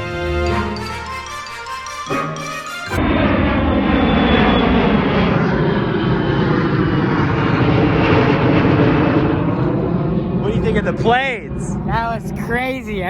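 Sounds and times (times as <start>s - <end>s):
airplane flying low overhead: 0.0s - 12.0s.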